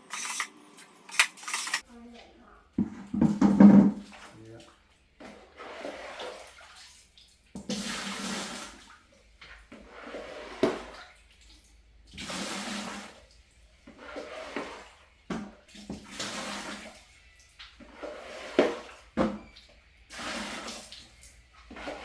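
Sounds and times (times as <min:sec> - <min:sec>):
water splashing: 0:04.0 - 0:09.0.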